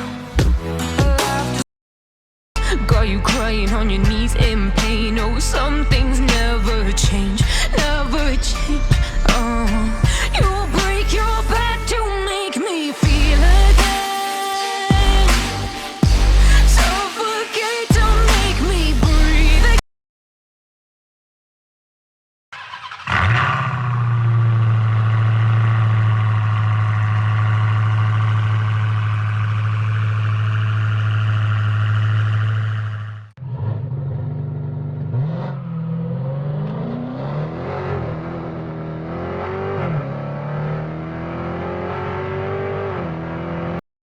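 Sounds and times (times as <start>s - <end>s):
car engine idling: 2.6s - 12.3s, 13.0s - 14.0s, 14.9s - 17.1s, 23.2s - 33.3s
car engine starting: 2.6s - 12.4s, 13.0s - 14.1s, 14.9s - 17.1s, 17.9s - 19.8s, 22.6s - 43.8s
car engine revving: 3.3s - 12.3s, 13.0s - 14.1s, 14.9s - 17.3s, 17.9s - 19.8s, 22.6s - 43.8s.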